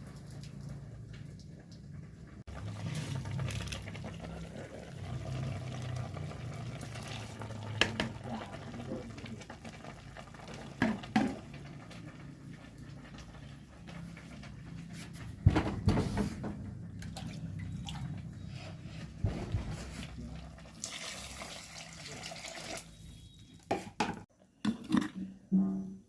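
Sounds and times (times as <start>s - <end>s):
water bubbling in a pot: 0.0s - 14.8s, 16.9s - 18.5s.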